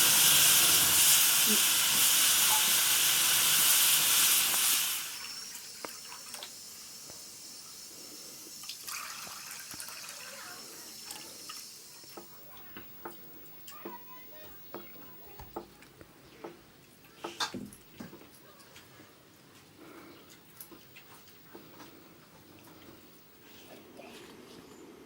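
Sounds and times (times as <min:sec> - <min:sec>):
loud rushing hiss: 0:00.0 - 0:05.7.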